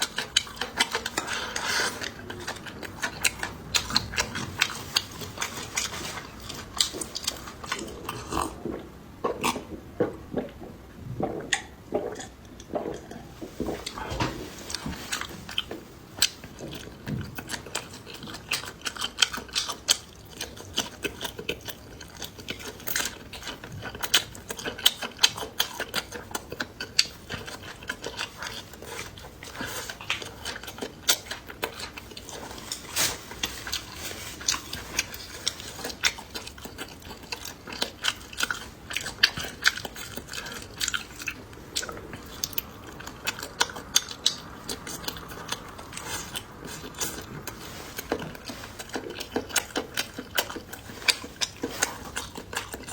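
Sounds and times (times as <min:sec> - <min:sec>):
person chewing food: 0:00.0 - 0:52.9
mouth clicks and smacks: 0:06.8 - 0:14.3.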